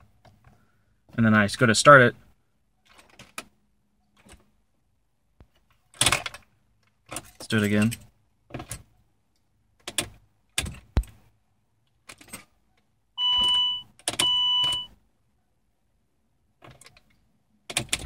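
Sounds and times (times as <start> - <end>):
electronic warning beeps: 13.2 - 14.9.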